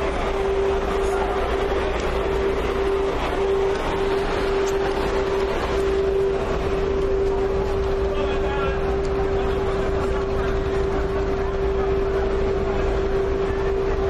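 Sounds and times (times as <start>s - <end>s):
boat engine running steadily: 0.0s - 14.0s
wash of noise: 0.0s - 14.0s.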